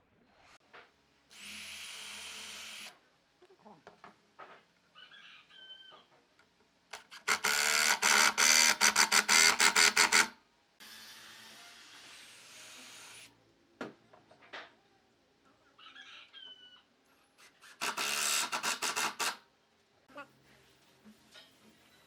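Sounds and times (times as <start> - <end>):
electric power tool motor: 7.1 - 13.3, 17.6 - 19.4.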